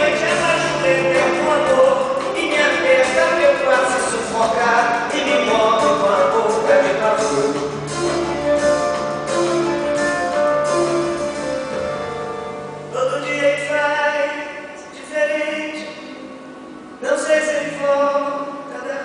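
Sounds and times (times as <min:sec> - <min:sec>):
instrumental accompaniment: 0:00.0 - 0:13.6.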